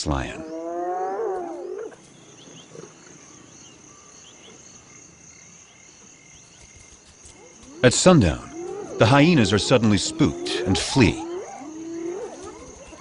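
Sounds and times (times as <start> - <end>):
crickets chirring: 0.0 - 13.0
wild animal call: 0.2 - 3.1, 7.4 - 13.0.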